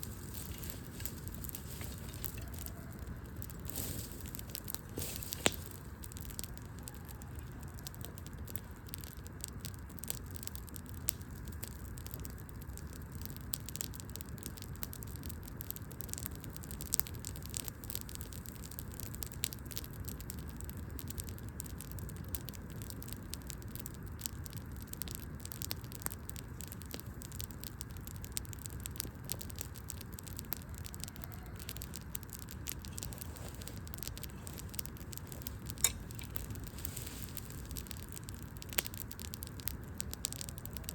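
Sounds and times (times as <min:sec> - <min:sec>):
low steady rumble: 0:00.0 - 0:10.6
loud fire pops: 0:00.0 - 0:40.9
wood fire crackling: 0:00.0 - 0:40.9.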